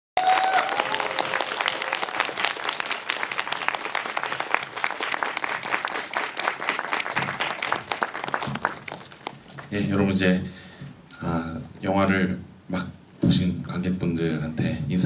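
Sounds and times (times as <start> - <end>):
audience applauding: 0.2 - 9.8.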